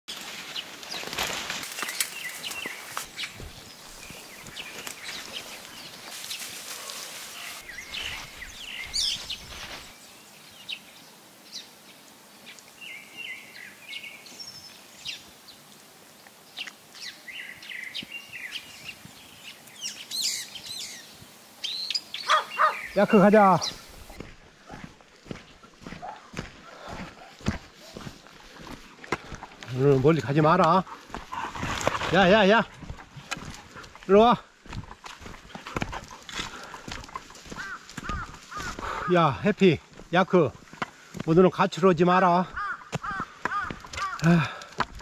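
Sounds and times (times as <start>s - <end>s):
rustling and crackling: 0.1s - 10.0s, 22.3s - 38.9s, 42.6s - 45.0s
birds chirping: 0.1s - 45.0s.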